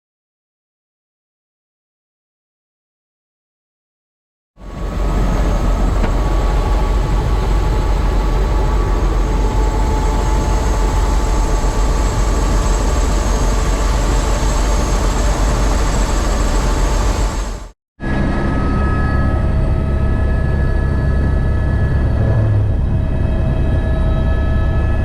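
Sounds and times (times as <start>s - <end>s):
helicopter rotor and engine: 4.6s - 25.0s.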